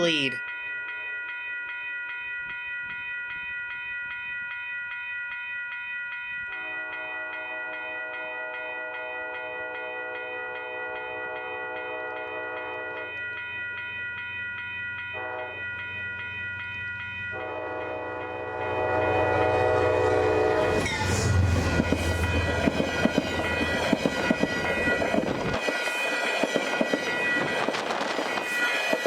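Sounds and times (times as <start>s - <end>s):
train passing with heavy rumble: 6.4s - 29.0s
locomotive air horn blast: 17.4s - 21.4s.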